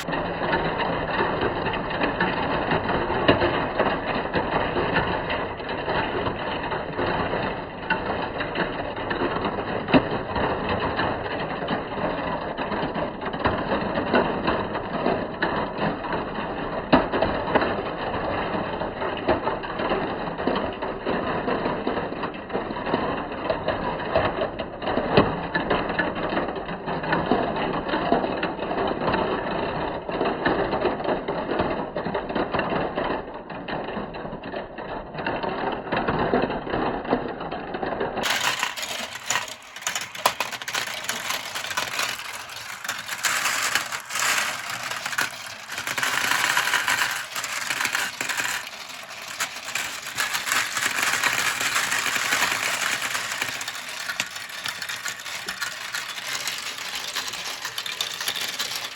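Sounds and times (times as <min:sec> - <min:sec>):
marbles rattling down plastic track: 0:38.2 - 0:58.9.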